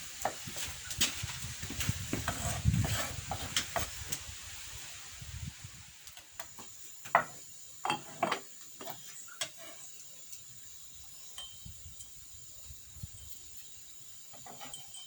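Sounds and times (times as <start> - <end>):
sharp knocks and clinks: 7.1 - 9.7, 14.3 - 15.0.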